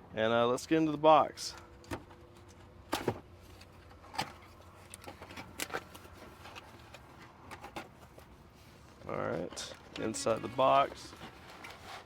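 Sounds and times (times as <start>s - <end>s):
cardboard box scrapes and rustles: 10.2s - 12.0s.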